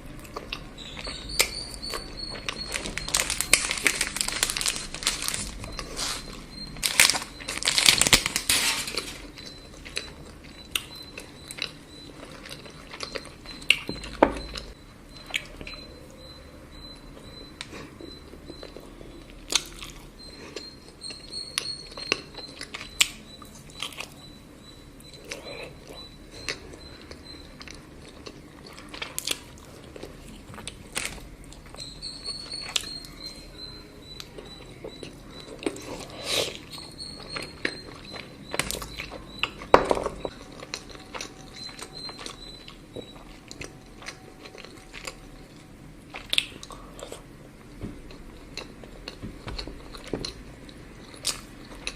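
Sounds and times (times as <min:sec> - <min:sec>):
chocolate crunching: 0:00.2 - 0:15.8
chewing: 0:00.2 - 0:15.9, 0:25.0 - 0:33.4, 0:34.1 - 0:51.9.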